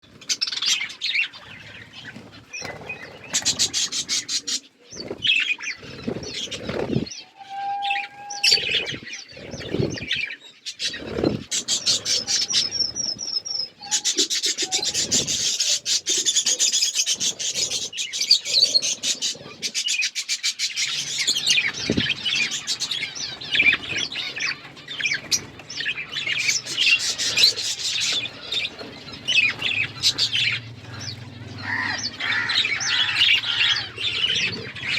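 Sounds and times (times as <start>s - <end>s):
budgerigars chirping and chattering: 0.1s - 34.9s.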